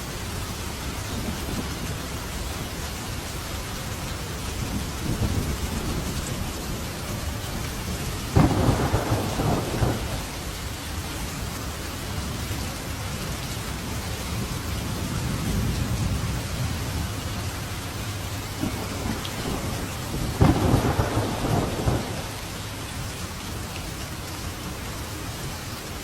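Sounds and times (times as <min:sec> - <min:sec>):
steady rain: 0:00.0 - 0:26.0
low rumbling thunder: 0:04.6 - 0:11.0, 0:14.3 - 0:23.1
thunder crack: 0:08.3 - 0:10.3, 0:18.6 - 0:22.4.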